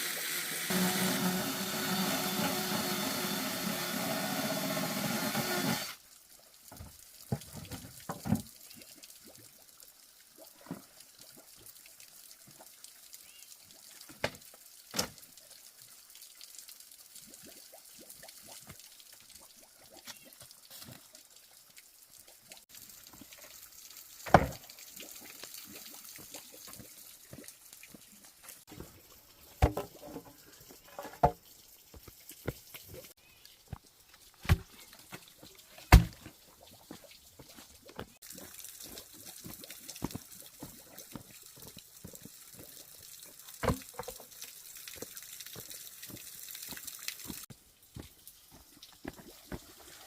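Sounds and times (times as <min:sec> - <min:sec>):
water drips: 0:06.0 - 0:50.0.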